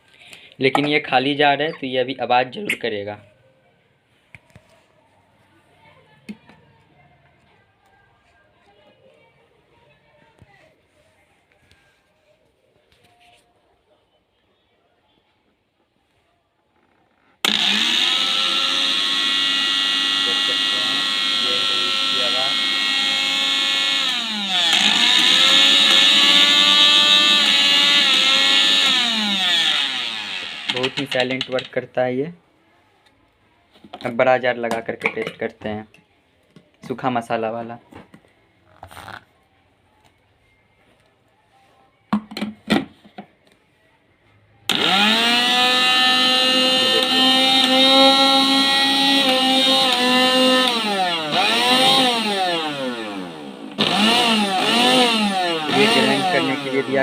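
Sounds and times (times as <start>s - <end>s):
mixer grinder motor whining: 17.4s - 31.4s, 44.7s - 57.0s.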